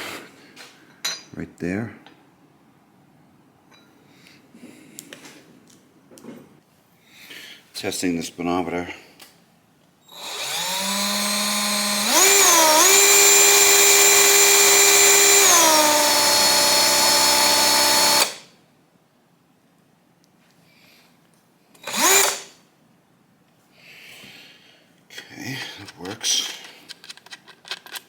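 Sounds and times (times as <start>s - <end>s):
electric drill motor whine: 10.1s - 18.4s, 21.8s - 22.5s.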